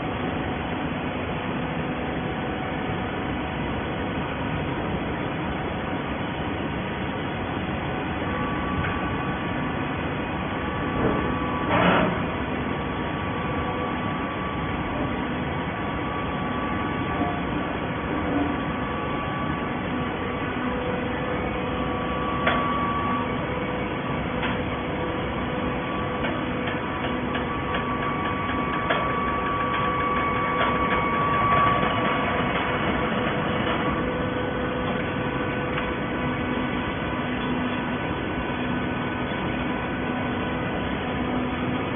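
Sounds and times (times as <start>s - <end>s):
baler machine hum: 0.0s - 41.9s
loud machine clatter: 10.9s - 12.5s, 26.0s - 38.3s.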